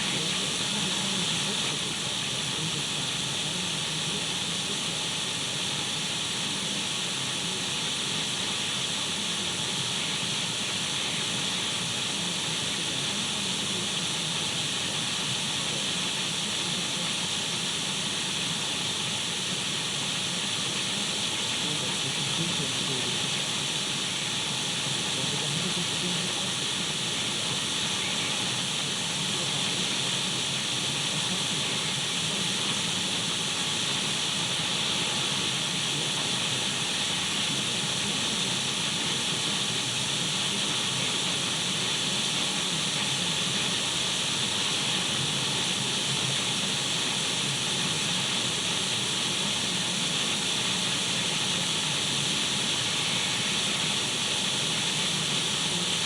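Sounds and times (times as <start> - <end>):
radio static hiss: 0.0 - 56.0.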